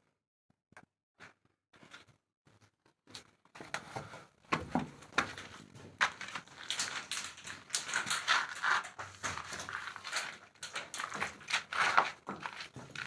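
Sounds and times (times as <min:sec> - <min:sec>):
clicks and knocks on steel fittings: 0:06.0 - 0:13.0.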